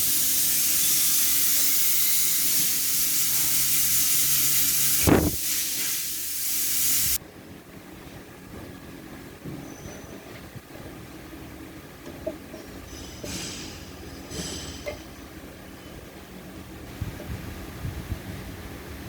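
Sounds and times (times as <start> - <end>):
compressed air hissing: 0.0 - 7.2.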